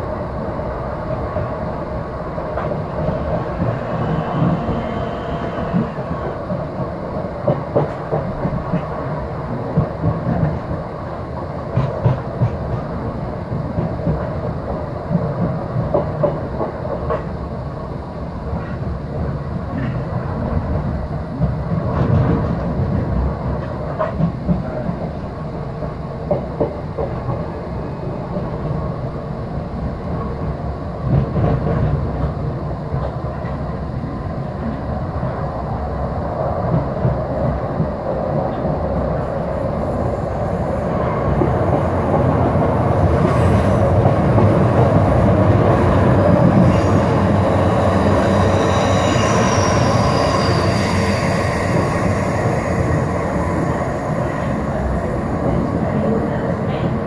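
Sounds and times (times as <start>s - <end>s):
train running rumble: 0.0s - 57.0s
high wheel squeal: 3.2s - 6.3s, 46.6s - 54.3s.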